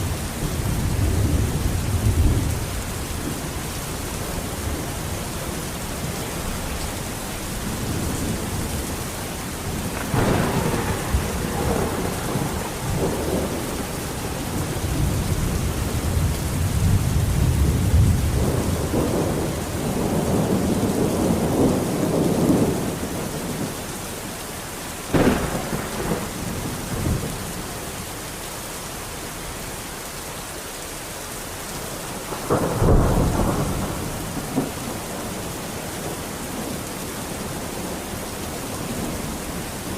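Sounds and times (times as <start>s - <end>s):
low rolling thunder rumble: 0.0s - 28.3s, 32.0s - 39.9s
heavy rain: 0.0s - 39.9s
thunder cracks: 9.6s - 23.7s, 25.1s - 27.6s, 32.2s - 35.5s.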